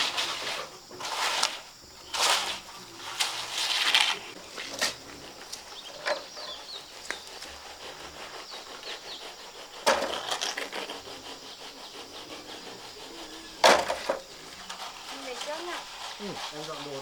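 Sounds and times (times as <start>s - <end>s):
wooden scraping: 0.0s - 17.0s
wooden knocks: 13.6s - 14.8s.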